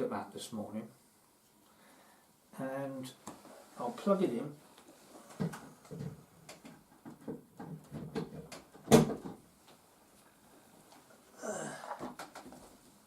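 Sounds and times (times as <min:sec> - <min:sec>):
power supply leads knocking and rattling: 0:05.3 - 0:09.4.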